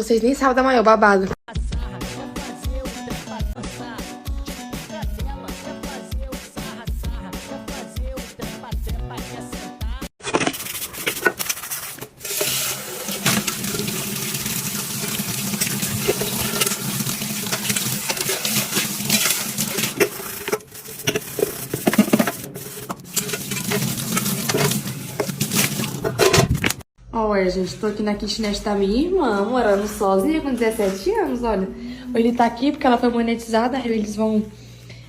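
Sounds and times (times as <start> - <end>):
water running at a sink: 12.2 - 26.1.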